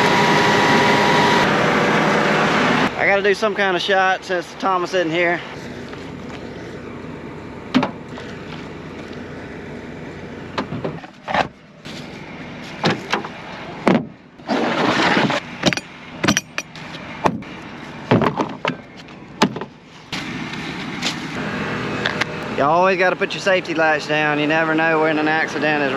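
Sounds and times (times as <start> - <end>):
engine idling: 0.0 - 25.9
metal clanks and knocks: 15.0 - 19.8.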